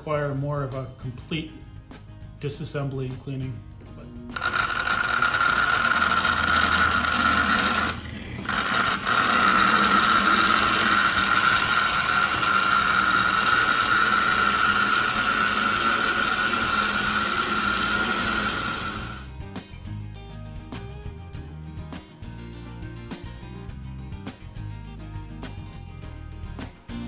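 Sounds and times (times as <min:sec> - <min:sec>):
toy train car motor whining: 0:04.4 - 0:19.3.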